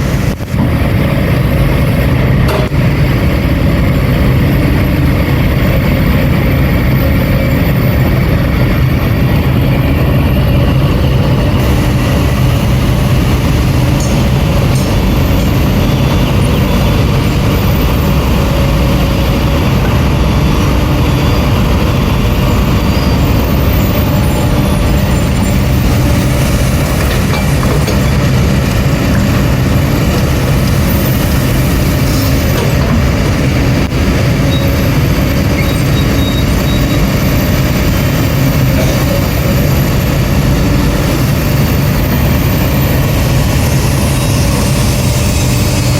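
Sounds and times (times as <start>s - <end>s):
heavy diesel machinery running: 0.0s - 45.9s.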